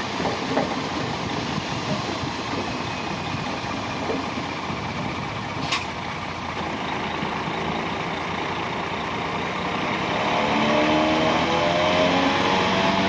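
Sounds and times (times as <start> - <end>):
diesel engine running: 0.0 - 13.0
short sharp hiss: 5.6 - 6.0.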